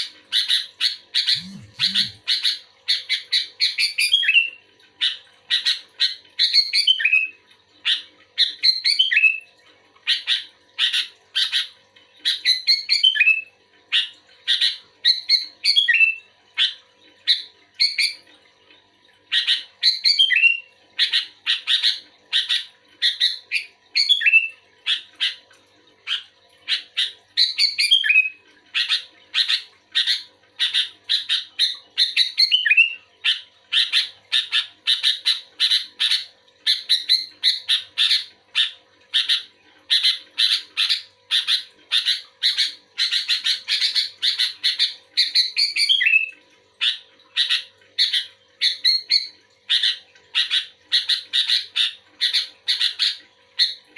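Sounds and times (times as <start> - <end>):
bulbul chirping: 1.3 - 2.2.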